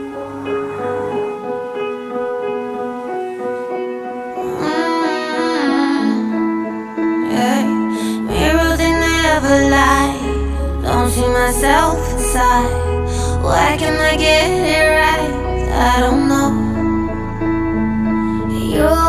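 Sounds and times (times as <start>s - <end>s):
piano notes: 0.0s - 19.0s
woman singing: 4.3s - 19.0s
bass: 7.9s - 19.0s.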